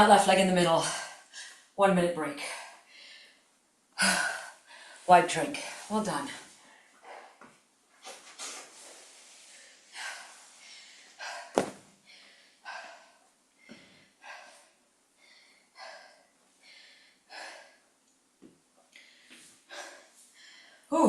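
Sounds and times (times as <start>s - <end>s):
person breathing hard: 2.4s - 5.9s, 9.2s - 18.0s, 18.9s - 20.9s.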